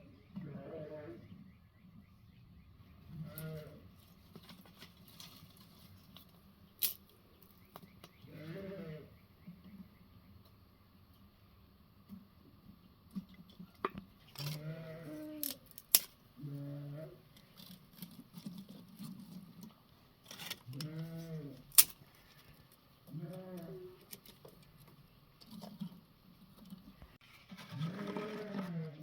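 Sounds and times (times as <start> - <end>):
livestock bleating: 0.4 - 1.2, 3.1 - 3.8, 8.3 - 9.1, 14.4 - 15.5, 20.8 - 21.6.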